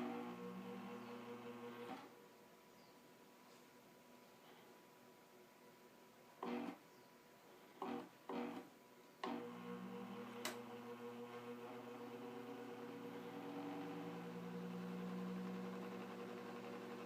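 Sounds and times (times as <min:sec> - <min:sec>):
electric fan motor hum: 0:00.0 - 0:02.2, 0:07.8 - 0:17.0.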